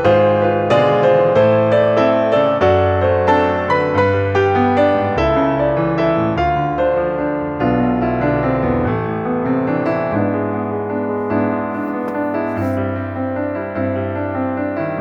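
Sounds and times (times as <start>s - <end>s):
slow gentle piano music: 0.0s - 15.0s.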